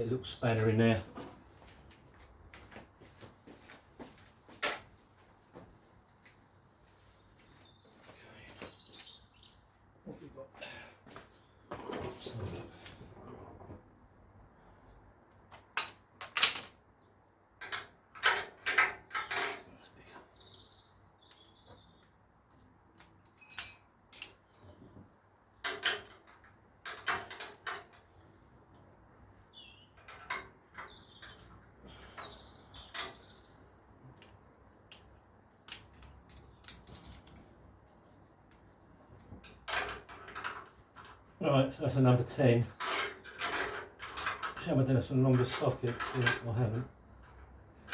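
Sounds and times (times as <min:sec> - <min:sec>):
hand tools clinking on metal: 0:17.6 - 0:19.7, 0:23.0 - 0:24.5, 0:30.0 - 0:33.2, 0:42.4 - 0:47.9.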